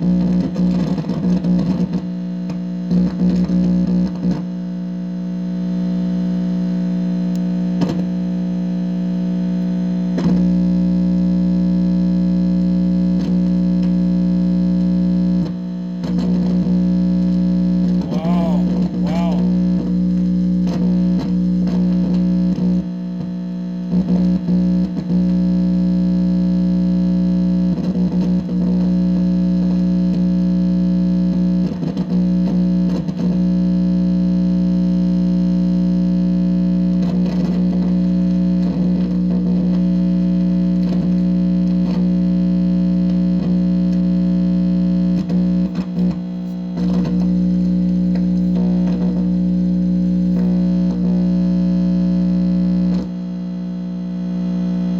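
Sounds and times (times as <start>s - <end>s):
distorted electronic hum and drone: 44.4s - 54.9s.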